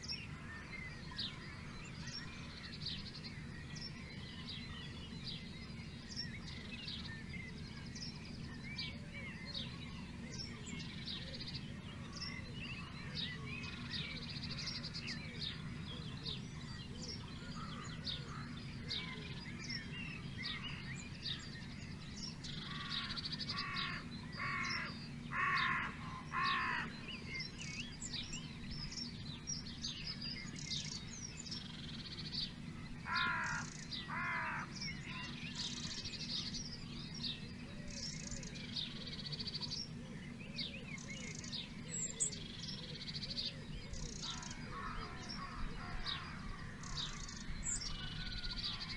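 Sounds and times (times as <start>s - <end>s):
birds chirping and singing: 0.0s - 48.9s
large bird harsh calls: 15.5s - 48.9s.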